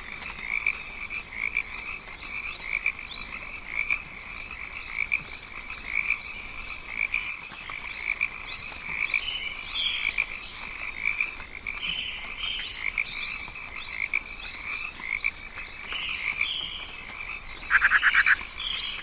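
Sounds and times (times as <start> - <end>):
frogs trilling chorus: 0.0 - 19.0
frog rising chirps: 17.7 - 18.8.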